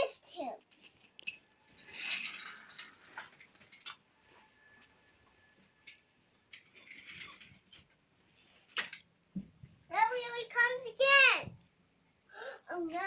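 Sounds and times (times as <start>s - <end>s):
toy trains clicking and rattling: 0.0s - 4.0s, 5.8s - 8.0s, 8.6s - 9.0s.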